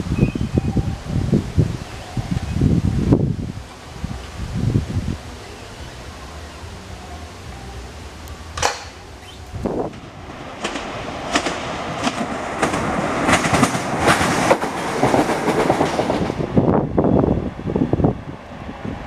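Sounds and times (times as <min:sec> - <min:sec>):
train wheels clicking over rail joints: 0:08.5 - 0:16.5.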